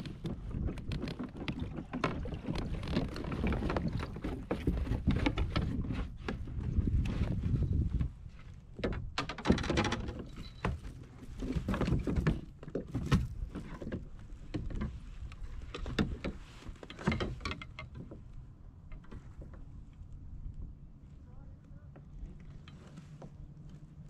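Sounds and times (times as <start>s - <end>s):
paddle splashes: 0.0s - 7.4s.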